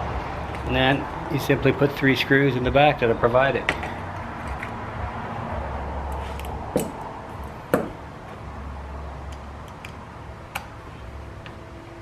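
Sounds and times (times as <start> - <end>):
low steady hum: 0.0 - 12.0
sharp knocks on metal bracket: 6.7 - 7.0, 7.7 - 8.0.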